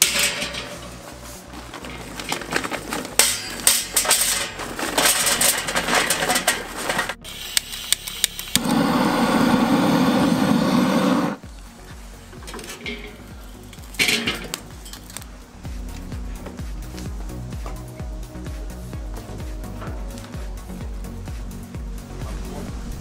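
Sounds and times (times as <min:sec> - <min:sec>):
clattering and knocking: 0:00.0 - 0:07.2, 0:12.3 - 0:15.2
gas torch hissing: 0:06.6 - 0:16.2
sharp clicks: 0:07.0 - 0:08.9.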